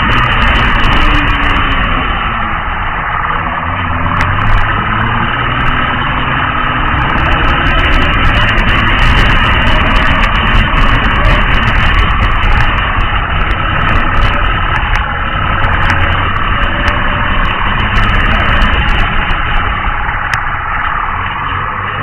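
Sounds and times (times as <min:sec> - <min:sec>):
road noise: 0:00.0 - 0:22.0
vehicle engine running: 0:00.0 - 0:22.0.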